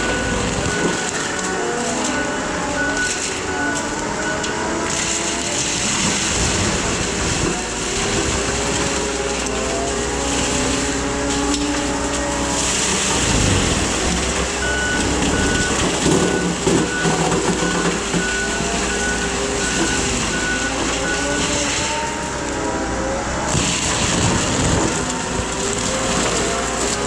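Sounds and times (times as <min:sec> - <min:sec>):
reversing alarm beeping: 0:00.0 - 0:06.2, 0:12.8 - 0:22.5
diesel engine running: 0:00.0 - 0:27.0.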